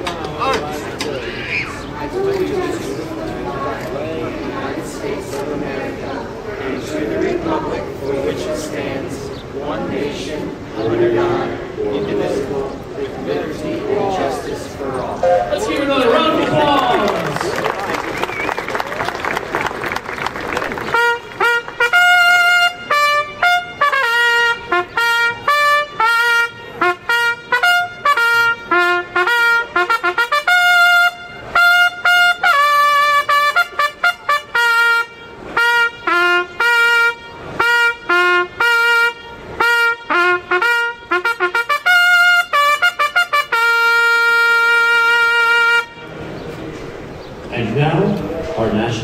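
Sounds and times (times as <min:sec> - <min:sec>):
solo trumpet bugle call: 0:20.9 - 0:46.2.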